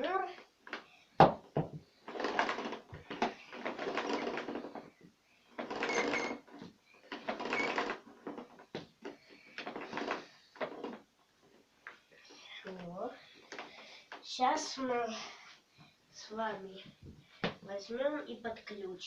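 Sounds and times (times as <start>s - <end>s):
cord pulled from reel: 2.0s - 4.9s, 5.6s - 11.0s
cord reel whirring and clicking: 2.0s - 11.0s.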